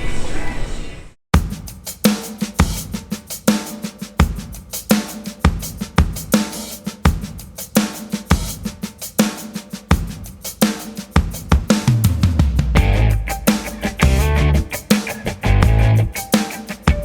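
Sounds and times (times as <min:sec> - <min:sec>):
drum kit playing steady beat: 0:01.3 - 0:17.0.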